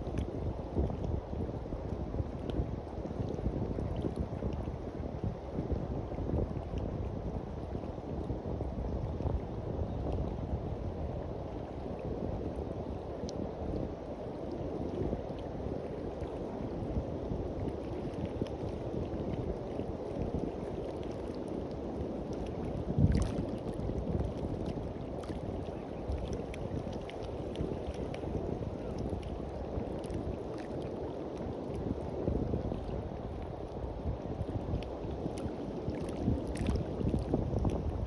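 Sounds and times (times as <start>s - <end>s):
sea waves washing on a beach: 0.0s - 38.0s
wind buffeting the microphone: 0.0s - 38.0s.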